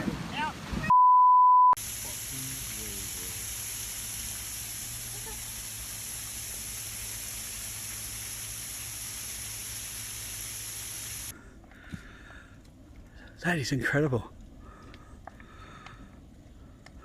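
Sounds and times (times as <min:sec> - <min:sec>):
steady hiss: 0:01.8 - 0:11.3.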